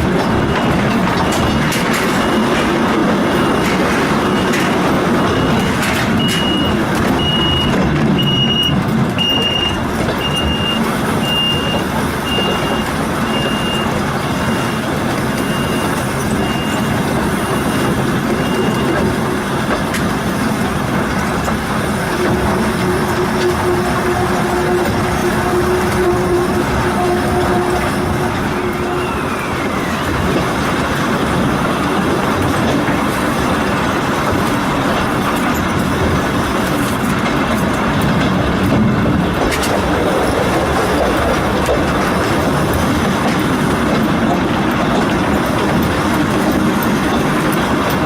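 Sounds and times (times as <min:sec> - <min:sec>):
railway car rumbling: 0:00.0 - 0:48.0
high warning beeps: 0:00.4 - 0:19.1.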